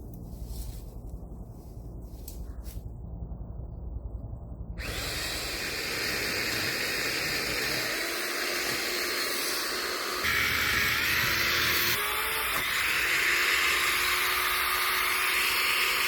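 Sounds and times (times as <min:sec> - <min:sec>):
power tool running: 0:04.8 - 0:16.0.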